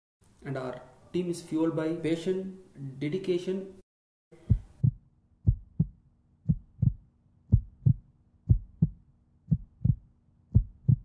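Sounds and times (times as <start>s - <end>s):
heartbeat double thump: 4.4s - 11.0s.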